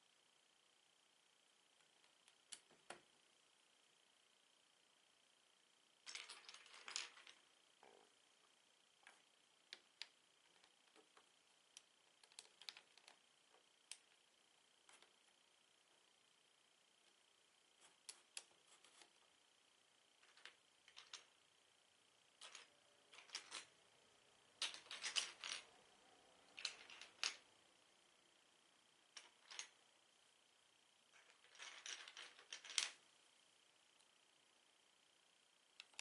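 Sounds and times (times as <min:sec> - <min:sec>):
plastic bricks clicking and rattling: 0:06.1 - 0:07.4, 0:24.6 - 0:25.7, 0:26.5 - 0:27.4, 0:29.2 - 0:29.7, 0:31.2 - 0:33.0.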